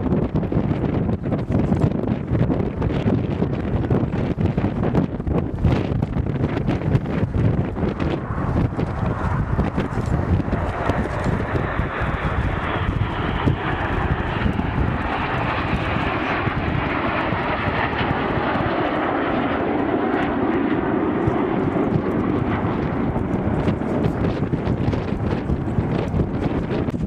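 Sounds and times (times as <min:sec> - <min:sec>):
aircraft engine in flight: 0:00.0 - 0:27.0
wind rumbling on microphone: 0:00.0 - 0:27.0.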